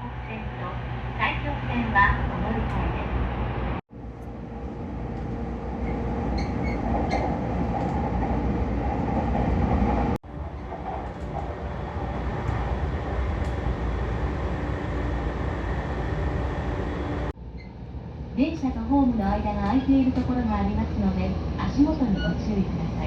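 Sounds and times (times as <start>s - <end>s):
train wheels rumbling: 0.0s - 17.4s.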